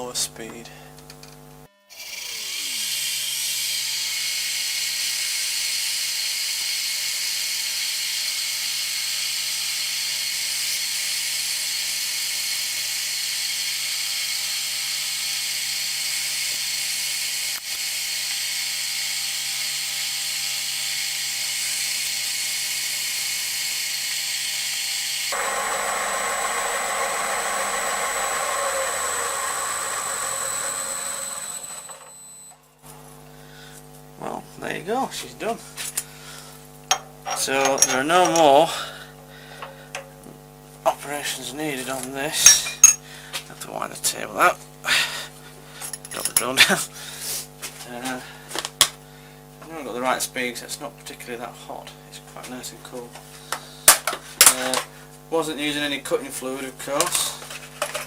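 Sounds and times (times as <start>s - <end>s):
milling machine drilling steel: 1.9s - 32.6s.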